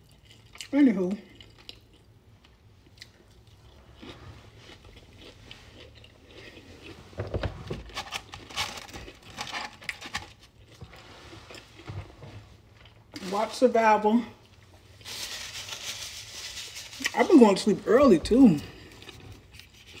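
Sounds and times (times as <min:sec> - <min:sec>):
person chewing: 0:00.0 - 0:07.2, 0:07.9 - 0:13.1, 0:18.7 - 0:20.0.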